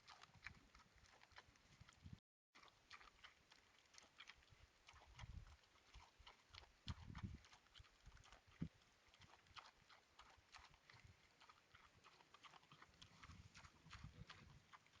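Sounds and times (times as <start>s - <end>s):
pigs feeding clicking and crunching: 0.0s - 15.0s
wind rumbling on microphone: 6.9s - 7.5s.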